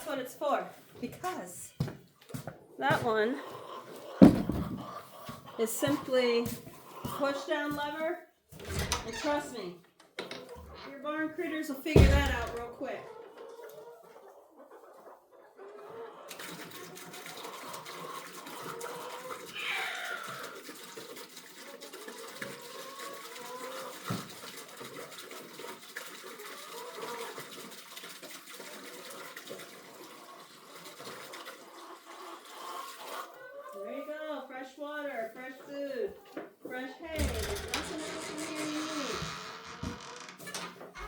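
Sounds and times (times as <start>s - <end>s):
water running into container: 16.3s - 33.3s.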